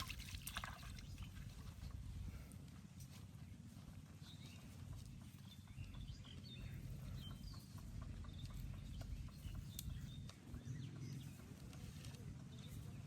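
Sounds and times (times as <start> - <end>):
low steady rumble: 0.0 - 13.0
small birds chirping: 3.0 - 13.0.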